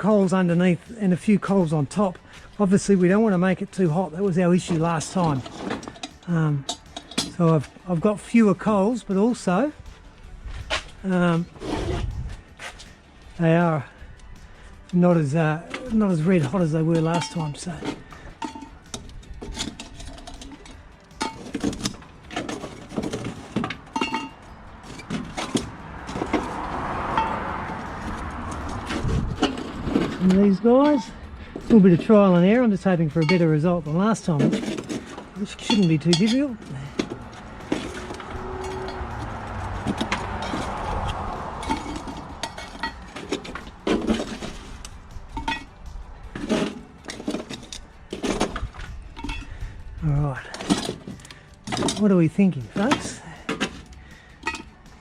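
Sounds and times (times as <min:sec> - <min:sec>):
metal clinks and scrapes: 0:00.2 - 0:55.0
shovel clinking on metal: 0:15.7 - 0:22.5
vehicle passing: 0:21.8 - 0:33.6, 0:34.8 - 0:55.0
steady rushing noise: 0:25.6 - 0:32.8.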